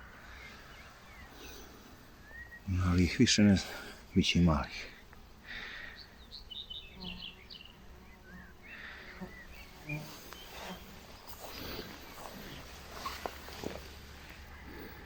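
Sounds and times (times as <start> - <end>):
faint bird chirps: 0.0 - 3.1.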